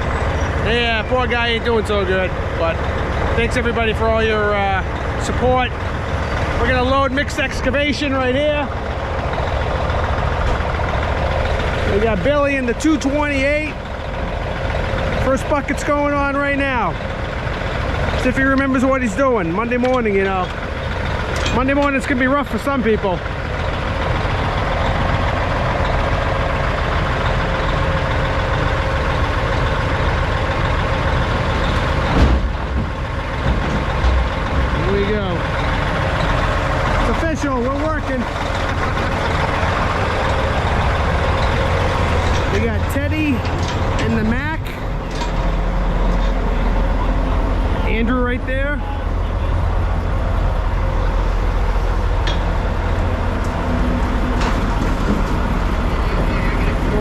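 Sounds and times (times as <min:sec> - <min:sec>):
heavy diesel engines running: 0:00.0 - 0:57.0
dirt loading into truck: 0:31.4 - 0:47.7, 0:52.0 - 0:57.0
sudden thump: 0:32.1 - 0:33.8.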